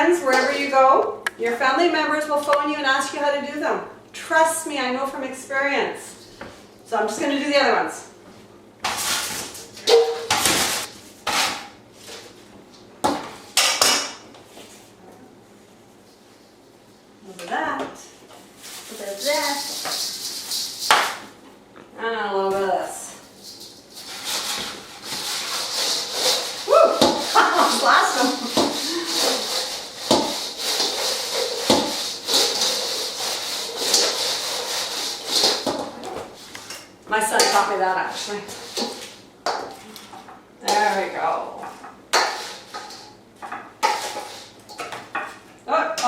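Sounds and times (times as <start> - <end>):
chicken wings scraping in a bowl: 18.6 - 20.9, 23.2 - 35.7, 42.2 - 43.1, 43.8 - 44.6.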